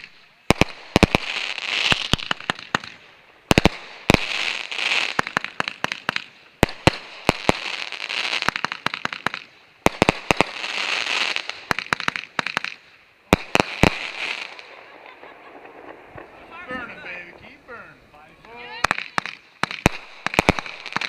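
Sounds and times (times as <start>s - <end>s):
fireworks bangs: 0.0s - 21.0s
fireworks crackle: 0.0s - 21.0s.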